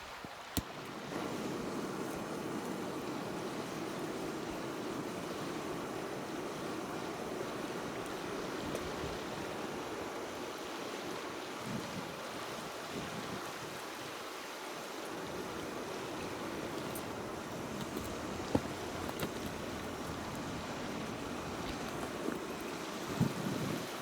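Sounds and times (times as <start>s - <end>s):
fire crackling: 15.1s - 24.0s.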